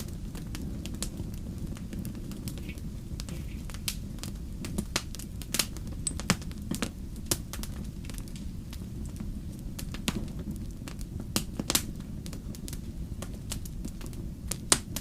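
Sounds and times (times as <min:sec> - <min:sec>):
low rumble of flame: 0:00.0 - 0:15.0
wood fire crackling: 0:00.0 - 0:15.0.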